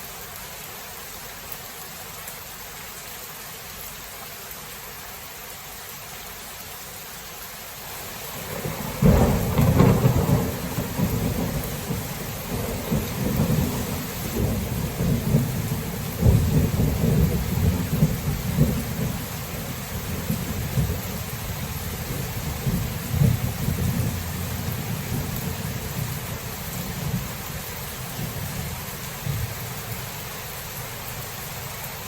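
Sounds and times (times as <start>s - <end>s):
steady rain: 0.0s - 32.0s
thunder clap and rumble: 8.4s - 29.7s.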